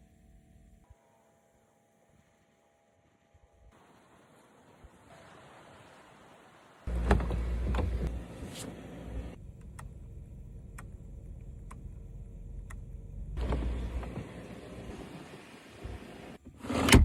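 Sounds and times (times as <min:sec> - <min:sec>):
car engine roaring: 0:06.9 - 0:16.4
engine low rumble: 0:06.9 - 0:16.4.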